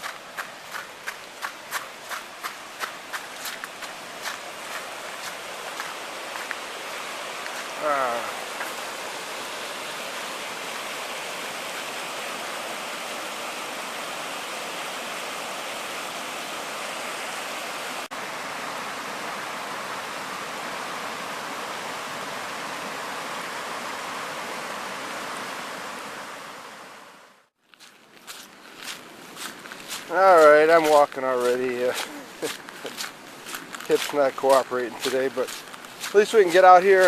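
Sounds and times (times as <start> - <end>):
water pouring over dam: 0.0 - 16.7, 29.9 - 37.0.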